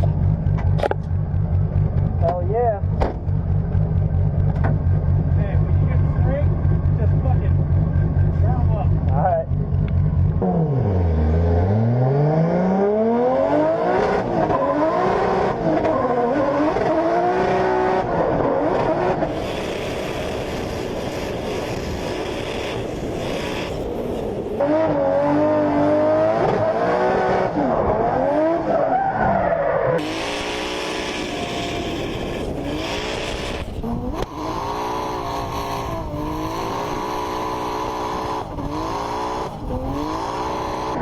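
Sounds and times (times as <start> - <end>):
car engine revving hard: 10.3 - 23.8, 24.6 - 29.0, 29.9 - 41.0.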